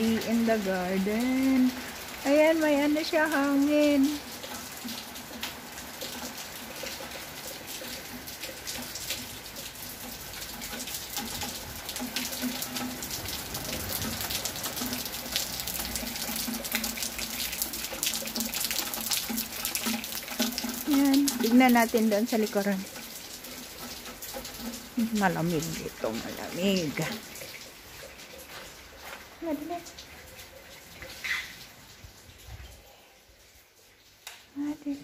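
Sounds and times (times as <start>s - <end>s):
rain falling: 0.0s - 35.0s
water streaming: 0.0s - 35.0s.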